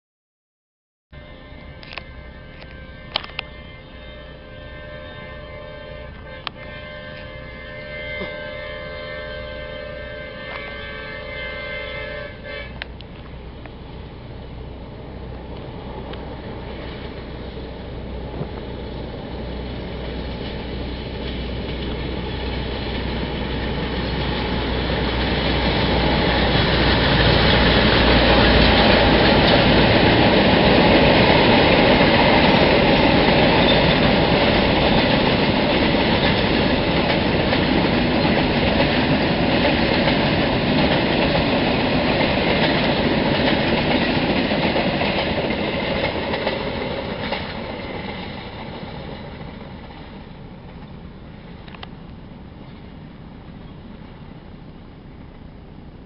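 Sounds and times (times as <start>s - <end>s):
train horn blast: 1.1s - 13.0s
coaches rolling on rails: 1.2s - 56.0s
diesel locomotives rumbling: 1.2s - 56.0s
wheels clattering over rail joints: 15.4s - 52.0s.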